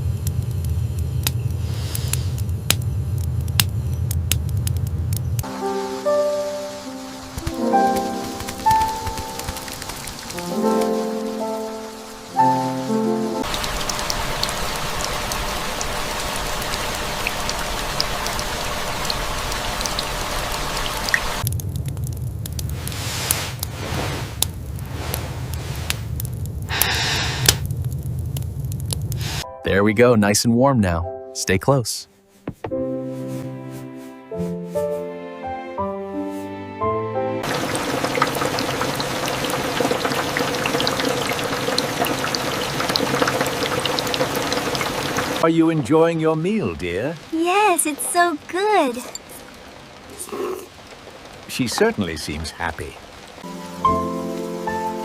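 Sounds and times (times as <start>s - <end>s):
steady rain hiss: 0.0s - 29.5s, 37.4s - 55.0s
scattered drips: 7.3s - 22.7s, 37.4s - 45.4s, 47.5s - 52.4s.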